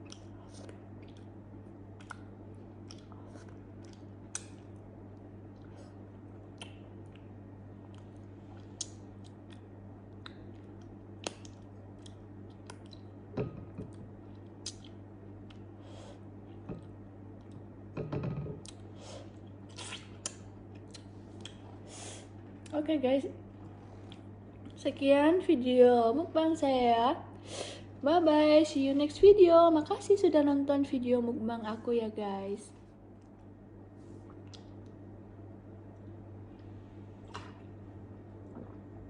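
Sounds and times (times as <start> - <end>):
person chewing: 0.0 - 13.1, 14.3 - 15.6, 18.6 - 21.8
steady low hum: 0.0 - 39.0.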